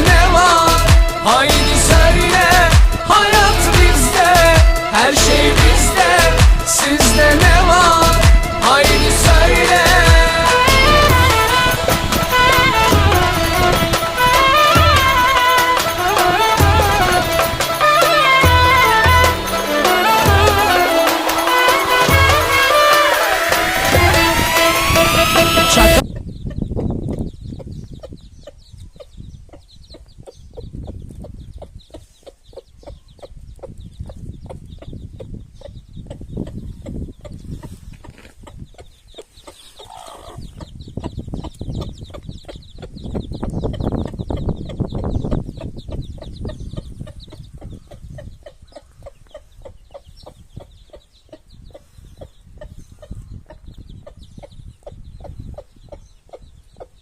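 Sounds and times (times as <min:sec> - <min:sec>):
young chickens clucking: 0:26.0 - 0:57.0.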